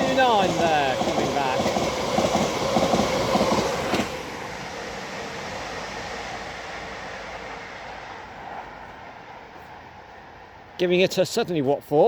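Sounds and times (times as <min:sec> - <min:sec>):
electric train rolling: 0:00.0 - 0:09.5.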